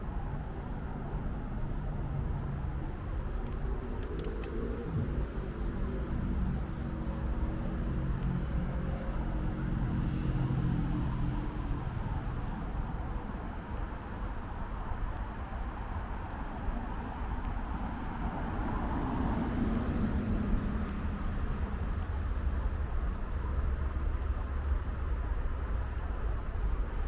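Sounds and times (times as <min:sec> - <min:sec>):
vehicle engine humming: 0:00.0 - 0:14.9
low traffic rumble: 0:00.0 - 0:27.0.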